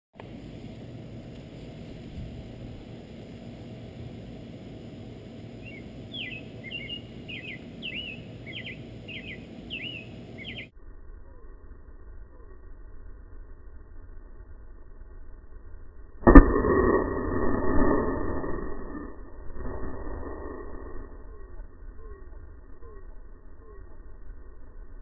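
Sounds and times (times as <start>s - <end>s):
steady low rumble: 0.2s - 25.0s
bird chirping: 5.6s - 10.7s.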